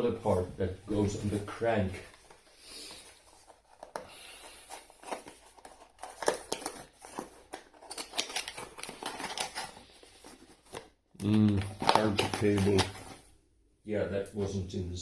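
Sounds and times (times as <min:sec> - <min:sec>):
packaging rustling and crinkling: 0:01.0 - 0:11.0, 0:11.6 - 0:13.3.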